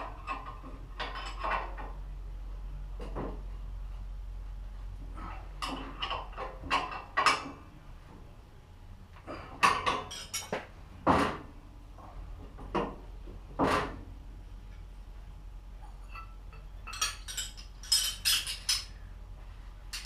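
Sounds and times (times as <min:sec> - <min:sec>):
metal tools clanking: 0:09.7 - 0:10.6, 0:15.8 - 0:19.0.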